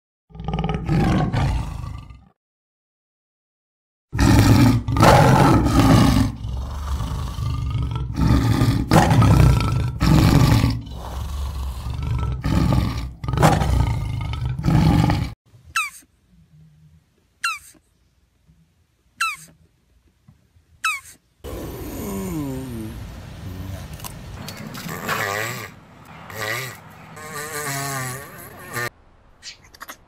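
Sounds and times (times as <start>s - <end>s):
tiger growling and roaring: 0.3s - 2.3s, 4.2s - 15.4s, 21.4s - 28.9s.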